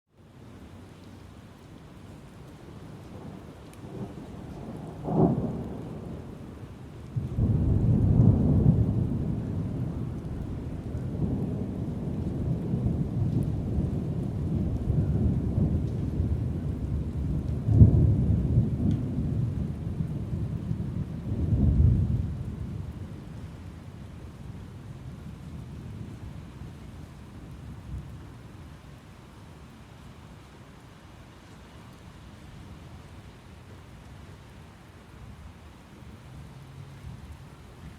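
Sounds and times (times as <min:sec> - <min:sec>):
steady rain: 0:00.1 - 0:37.9
rolling thunder: 0:03.1 - 0:23.9.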